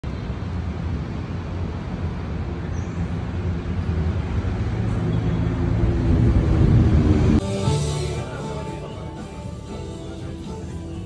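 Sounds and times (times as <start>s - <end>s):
steady low rumble: 5.7s - 8.4s.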